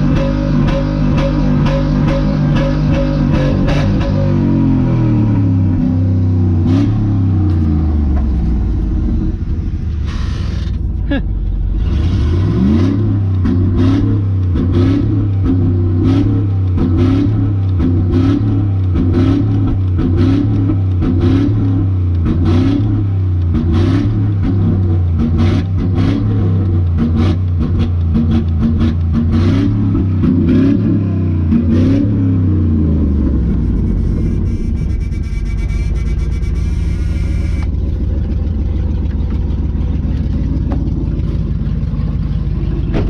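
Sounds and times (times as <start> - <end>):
truck engine loping idle: 7.4 - 12.1, 33.2 - 43.0.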